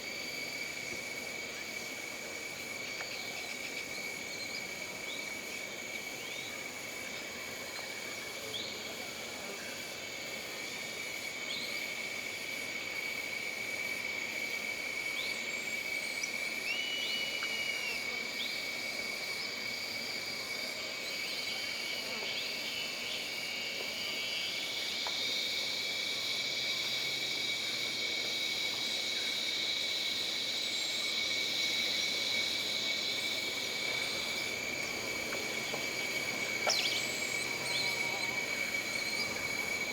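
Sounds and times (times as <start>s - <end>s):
buzzing insect chorus: 0.0s - 39.9s
high-pitched insect drone: 9.7s - 39.9s.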